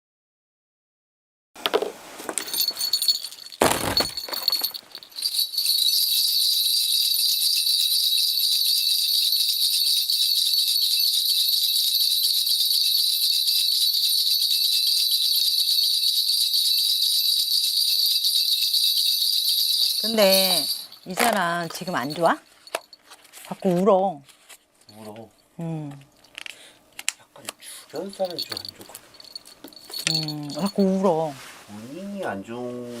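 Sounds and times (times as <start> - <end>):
bell cluster shaking: 2.4 - 23.6, 27.9 - 31.2.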